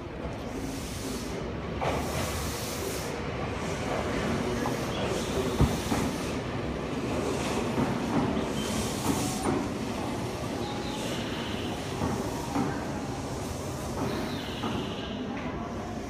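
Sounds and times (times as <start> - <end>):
electric train rolling past: 0.0 - 16.0.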